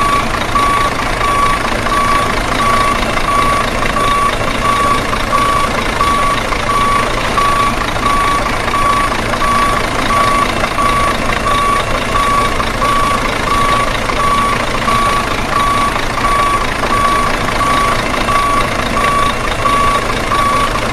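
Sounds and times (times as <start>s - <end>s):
truck engine running: 0.0s - 20.9s
truck reversing alarm beeps: 0.0s - 20.9s.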